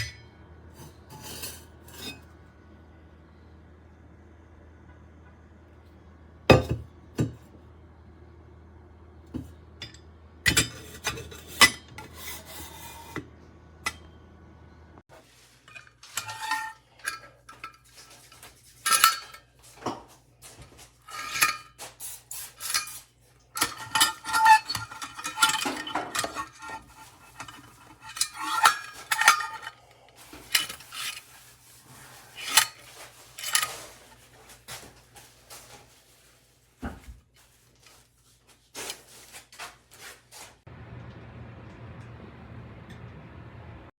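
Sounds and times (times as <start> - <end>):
metal parts clinking and scraping: 21.1 - 31.4, 32.2 - 34.2.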